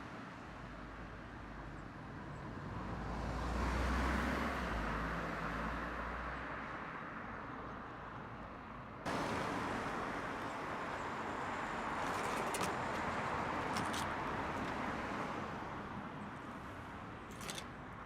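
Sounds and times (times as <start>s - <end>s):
road traffic noise: 8.4s - 18.0s.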